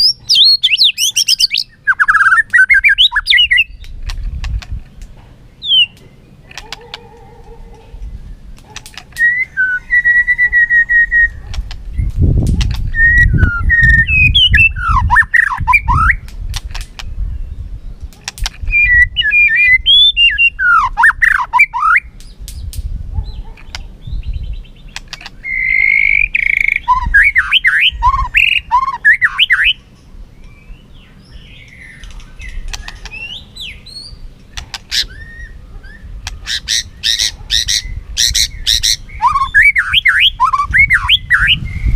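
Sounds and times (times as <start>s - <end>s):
bird singing whistled notes: 0.0s - 4.0s, 5.5s - 6.4s, 9.1s - 16.3s, 18.7s - 34.3s, 34.9s - 41.9s
bird sharp clicking notes: 1.3s - 5.2s, 5.8s - 7.3s, 8.5s - 9.4s, 16.2s - 17.1s, 18.0s - 18.6s, 24.9s - 27.0s, 31.7s - 33.2s, 34.5s - 35.2s.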